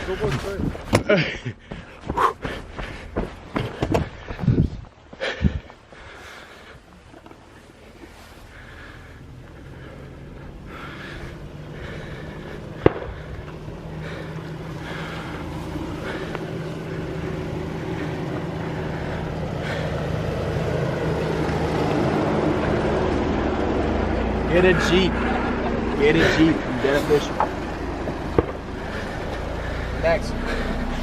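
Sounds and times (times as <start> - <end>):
car engine approaching: 0.0 - 31.0.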